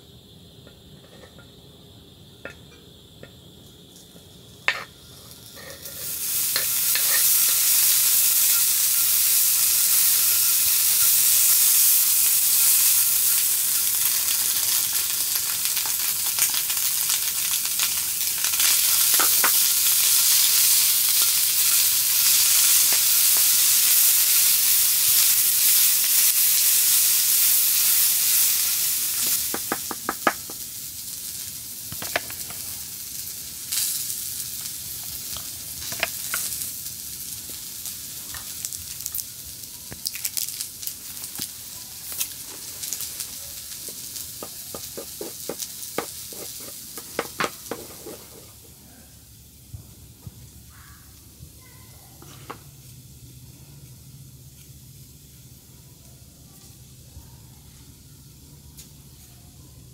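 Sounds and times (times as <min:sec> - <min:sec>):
ham and onion sizzling: 0:00.0 - 0:51.7, 0:52.3 - 0:56.0
wooden utensil stirring: 0:44.7 - 0:48.6.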